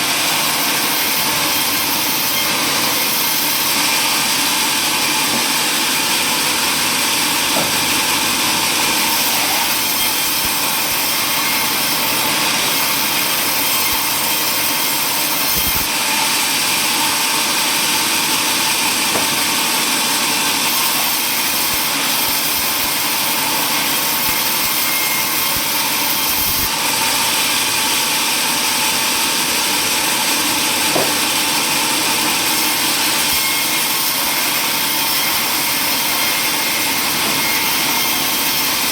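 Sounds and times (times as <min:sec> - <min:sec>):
power saw cutting wood: 0:00.0 - 0:38.9.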